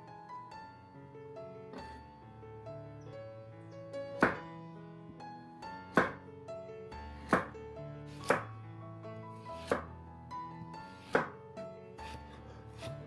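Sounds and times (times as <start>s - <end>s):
soft background music: 0.0s - 13.0s
knife chopping on cutting board: 4.2s - 4.4s, 5.9s - 6.2s, 7.2s - 7.5s, 8.1s - 8.5s, 9.5s - 9.9s, 10.9s - 11.4s, 12.0s - 13.0s.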